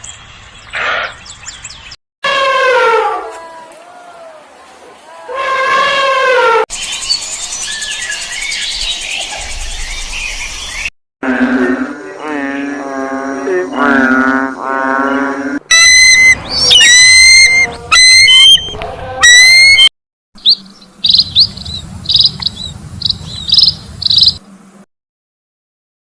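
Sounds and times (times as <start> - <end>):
wavering low-pitched animal call: 11.2 - 19.9
short high chirps: 15.7 - 19.9
high sharp animal calls: 15.7 - 24.4.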